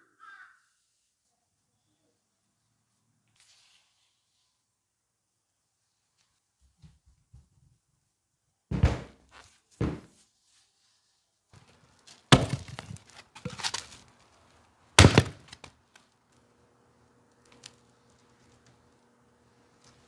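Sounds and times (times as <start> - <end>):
axe chopping wood: 12.3 - 13.8, 15.0 - 15.7.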